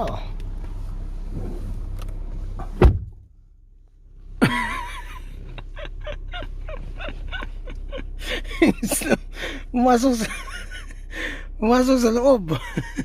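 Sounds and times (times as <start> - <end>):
heavy thump: 2.6 - 3.3
breathy laughter: 4.4 - 9.6.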